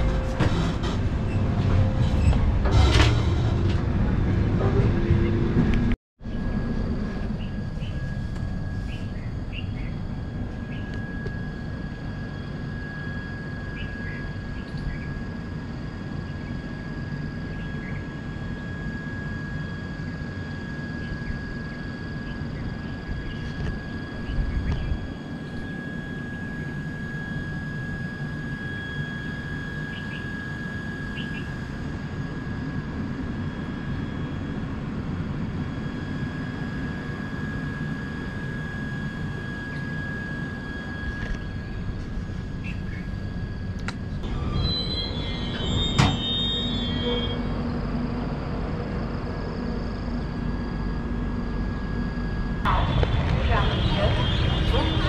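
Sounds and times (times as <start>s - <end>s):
train bump: 0.0s - 5.8s
train rumble: 0.0s - 12.1s, 52.0s - 55.0s
thin high whine: 0.0s - 55.0s.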